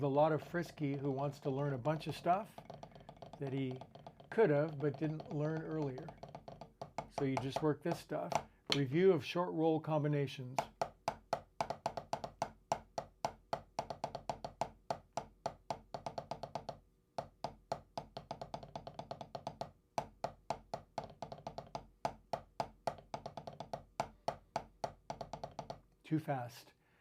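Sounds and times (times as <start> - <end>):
drumsticks playing rolls: 0.0 - 9.1.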